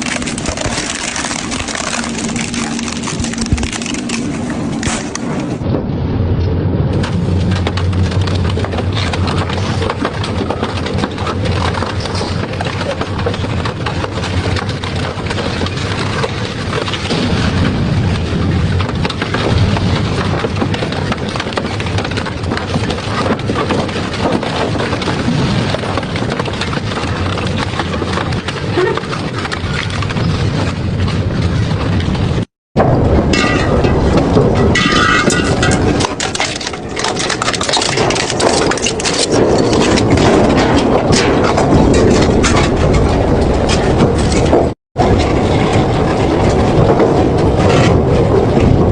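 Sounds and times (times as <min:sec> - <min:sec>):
shredder crunching material: 0:00.0 - 0:05.6, 0:33.3 - 0:48.9.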